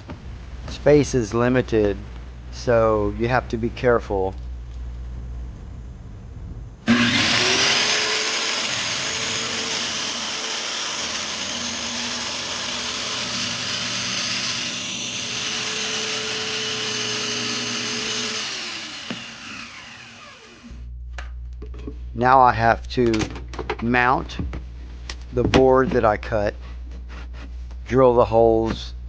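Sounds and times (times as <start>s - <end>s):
power tool cutting wood: 6.9s - 20.8s.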